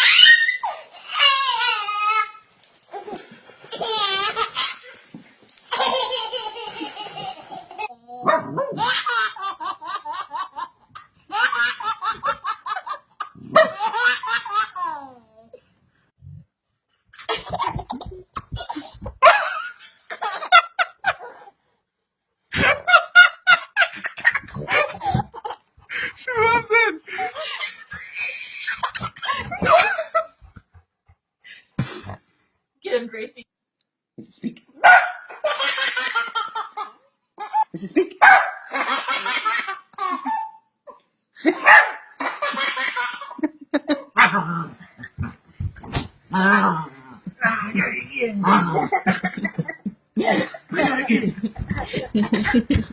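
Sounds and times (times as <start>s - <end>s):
child laughing: 5.7s - 8.0s, 48.4s - 52.9s
dog barking: 34.8s - 35.3s, 38.2s - 38.7s, 41.6s - 42.1s.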